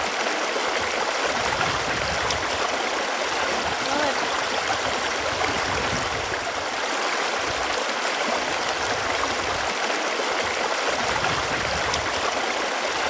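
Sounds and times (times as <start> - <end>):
running water: 0.0 - 13.0.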